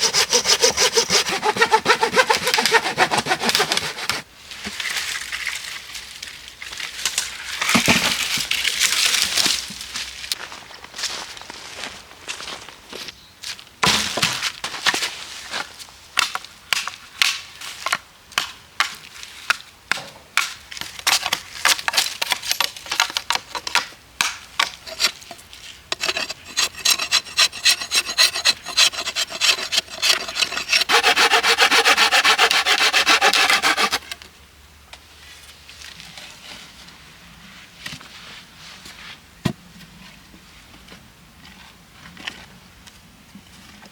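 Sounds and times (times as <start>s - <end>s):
hand saw cutting wood: 0.0s - 4.2s, 24.7s - 34.2s.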